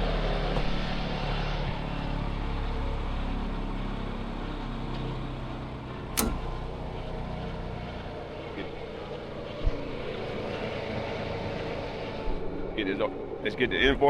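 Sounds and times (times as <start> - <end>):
sharp click: 6.2 - 6.8.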